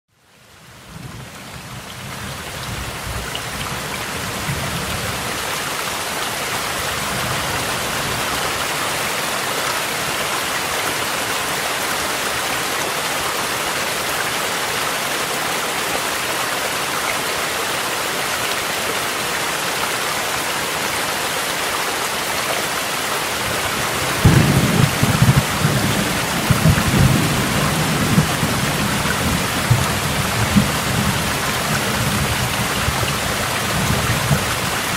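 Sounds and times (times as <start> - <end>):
heavy rain: 0.1 - 34.9
stream rushing: 0.4 - 34.9
low rolling thunder: 23.5 - 34.7.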